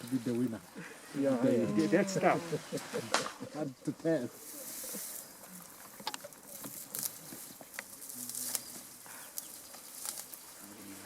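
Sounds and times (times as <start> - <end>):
leaves and stems snapping: 6.1 - 10.4.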